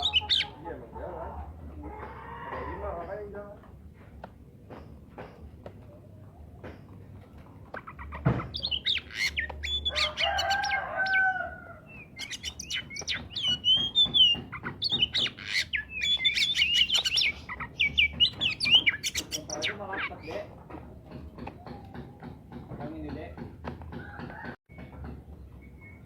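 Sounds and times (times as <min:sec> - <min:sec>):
songbird singing: 0:00.0 - 0:01.6, 0:05.8 - 0:24.8.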